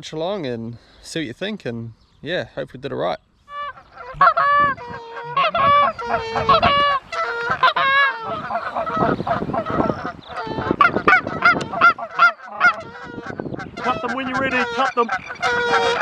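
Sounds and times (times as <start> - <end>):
geese honking and clucking: 3.5 - 16.0.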